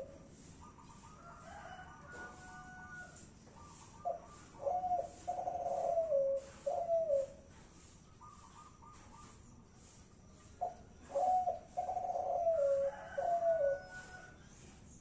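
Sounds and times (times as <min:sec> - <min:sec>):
dove cooing: 0:00.0 - 0:07.5, 0:10.6 - 0:14.4.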